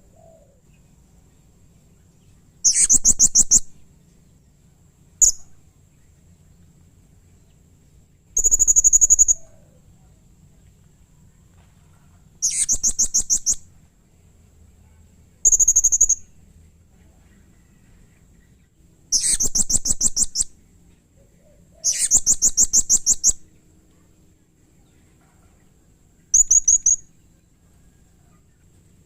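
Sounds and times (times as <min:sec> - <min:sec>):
parrot shrill calls: 0:02.7 - 0:03.6, 0:21.8 - 0:23.4, 0:26.4 - 0:27.0.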